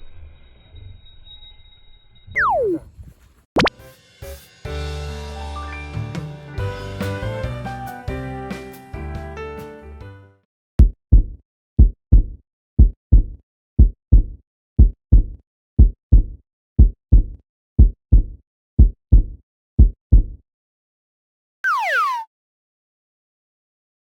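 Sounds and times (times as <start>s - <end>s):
falling whistle-like tone: 0.2s - 2.9s
heartbeat thumps: 10.8s - 20.4s.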